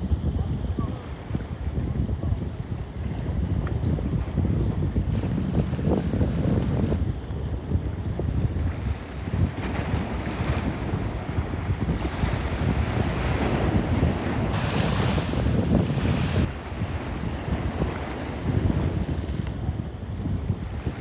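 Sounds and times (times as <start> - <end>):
wind on microphone: 0.0 - 21.0
sea waves washing: 8.8 - 21.0.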